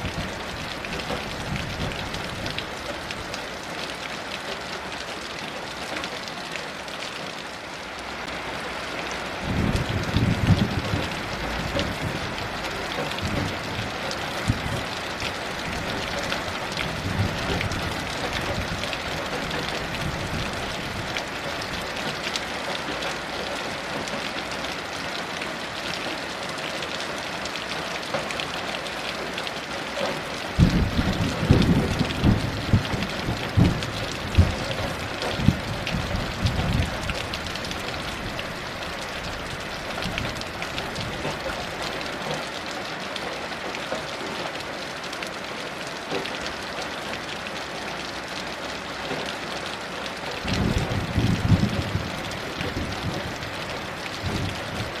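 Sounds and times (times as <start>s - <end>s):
heavy rain: 0.0s - 55.0s
distant thunder rumbling: 30.6s - 38.4s.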